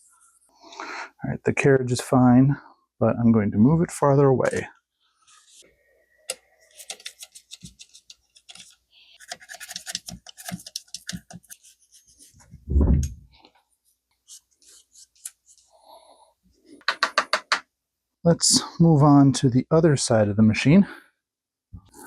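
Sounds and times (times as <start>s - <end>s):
dull thump: 12.6s - 13.3s.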